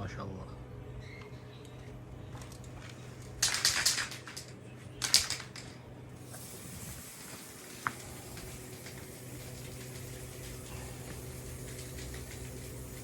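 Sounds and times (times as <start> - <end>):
spray paint can hissing: 3.4 - 4.4, 5.0 - 13.0.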